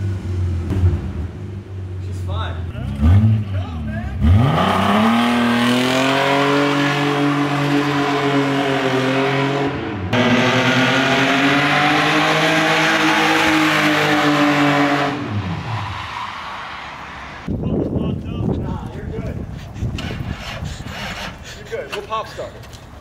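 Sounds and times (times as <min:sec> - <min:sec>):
car engine revving hard: 0:04.1 - 0:15.8.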